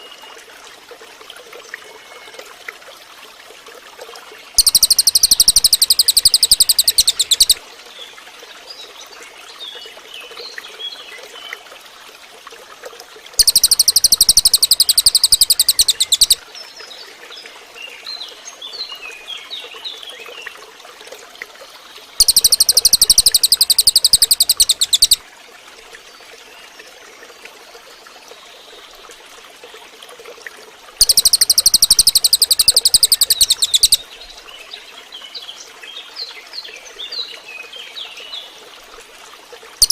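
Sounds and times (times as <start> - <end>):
bird singing rapid high trill: 4.6 - 7.6, 13.4 - 16.4, 22.2 - 25.2, 31.0 - 34.0
faint bird chirps: 4.6 - 7.6, 13.4 - 16.4, 22.2 - 25.2, 31.0 - 34.0.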